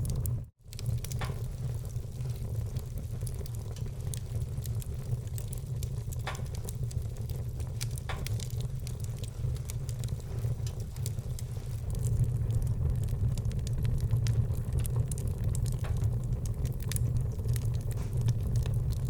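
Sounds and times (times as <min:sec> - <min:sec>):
fire crackling: 0:00.0 - 0:19.0
sharp fire pops: 0:00.0 - 0:19.0
wood fire rumbling: 0:00.0 - 0:19.0.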